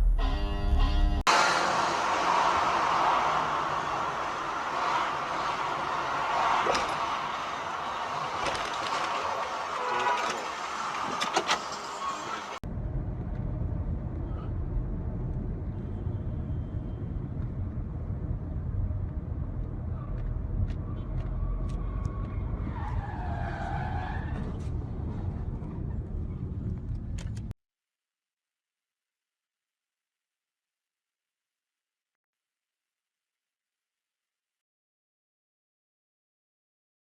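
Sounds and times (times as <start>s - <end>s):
car road and engine rumble: 1.2s - 27.6s.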